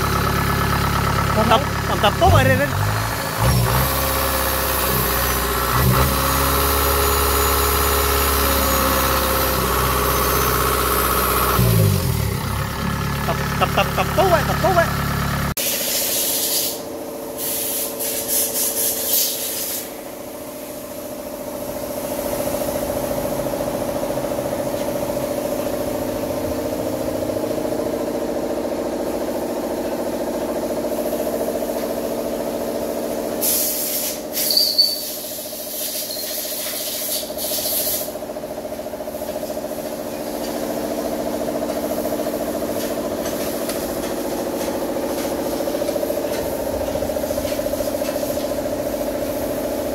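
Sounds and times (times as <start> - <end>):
farm machine engine running: 0.0 - 15.5, 38.1 - 49.9.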